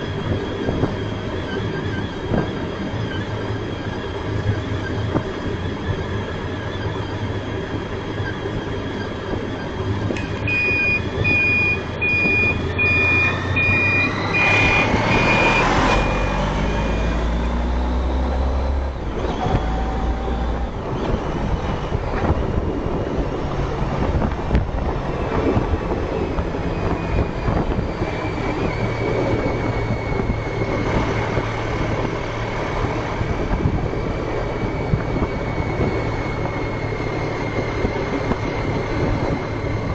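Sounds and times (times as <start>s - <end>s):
motorcycle engine accelerating: 0.0s - 39.9s
wind and road noise: 0.0s - 39.9s
high electronic beeps: 10.2s - 17.8s.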